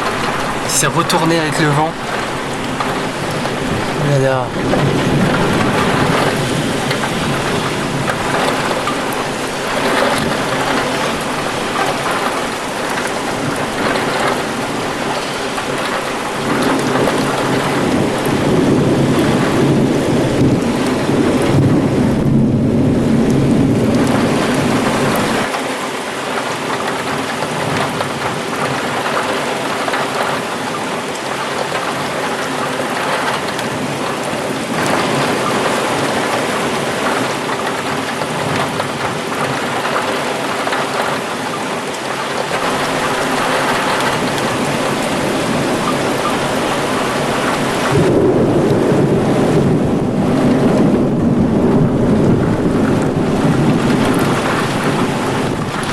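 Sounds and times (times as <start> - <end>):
low thunder rumble: 0.0 - 25.5, 42.4 - 55.9
heavy rain pouring: 0.0 - 55.9.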